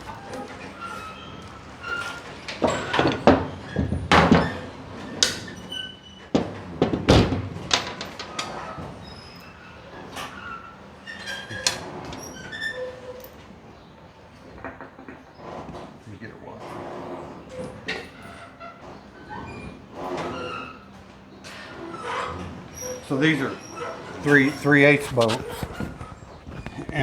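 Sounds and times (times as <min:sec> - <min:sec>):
faint squeaks: 0:00.0 - 0:06.3, 0:08.3 - 0:27.0
metal tools clanking: 0:21.4 - 0:27.0.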